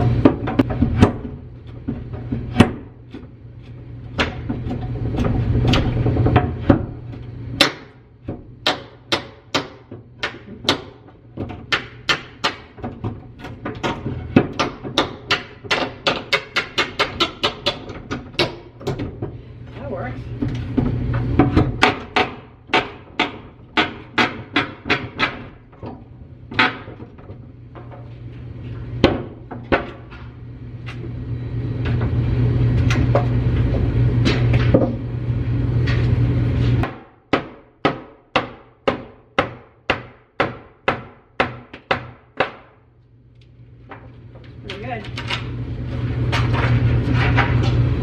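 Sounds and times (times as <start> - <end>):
loud steady low hum: 27.6 - 37.1.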